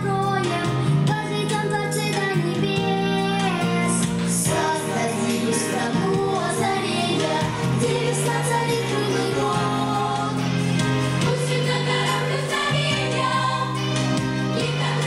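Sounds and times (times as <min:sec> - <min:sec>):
instrumental backing music: 0:00.0 - 0:15.0
children singing: 0:04.5 - 0:10.6, 0:11.2 - 0:15.0.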